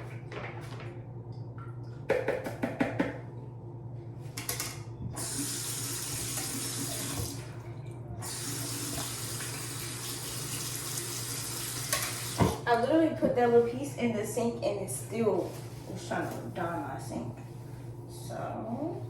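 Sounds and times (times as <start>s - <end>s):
water rushing from a tap: 5.2s - 7.4s, 8.2s - 12.6s.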